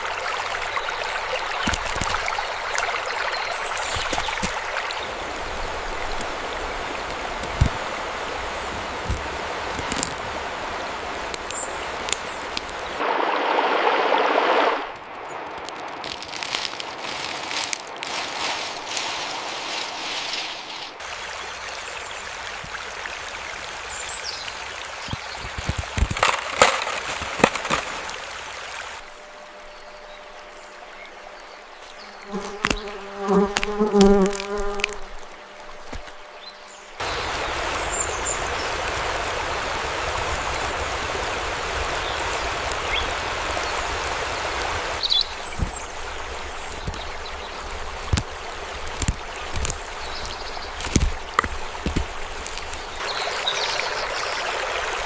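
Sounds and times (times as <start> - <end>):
steady outdoor hiss with ticks: 0.0 - 13.0, 14.9 - 55.0
flying insect buzzing: 31.8 - 36.2.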